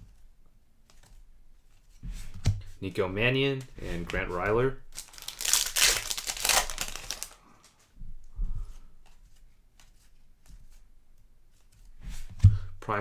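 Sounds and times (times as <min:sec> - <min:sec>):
wrapper tearing and crinkling: 0:04.9 - 0:07.4
cards ticking being handled: 0:05.0 - 0:07.4.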